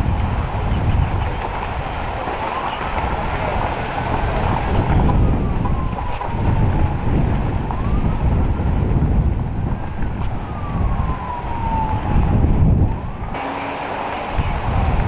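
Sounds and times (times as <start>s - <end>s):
wind buffeting microphone: 0.0s - 15.0s
siren wailing: 0.4s - 15.0s.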